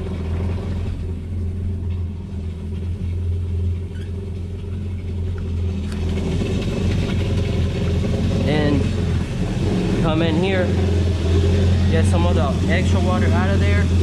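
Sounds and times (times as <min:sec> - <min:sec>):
jet ski engine idling: 0:00.0 - 0:14.0.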